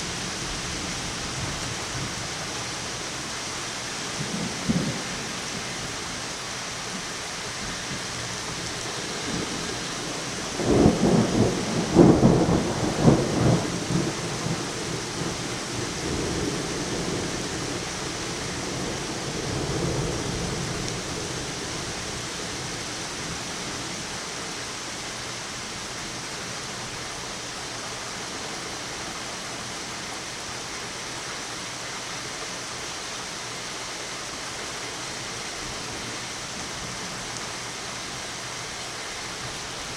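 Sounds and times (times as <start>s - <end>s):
rain falling: 0.0s - 39.9s
thunder cracking and rumbling: 10.4s - 17.8s.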